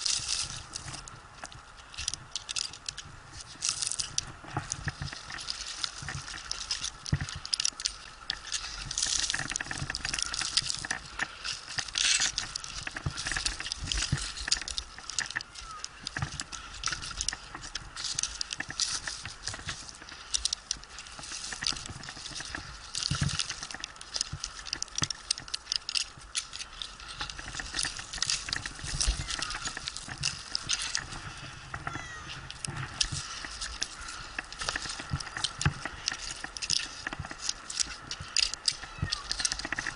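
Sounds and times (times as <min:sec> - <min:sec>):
rope and bark rustling: 0:00.0 - 0:39.9
cat meowing faintly: 0:31.9 - 0:32.4.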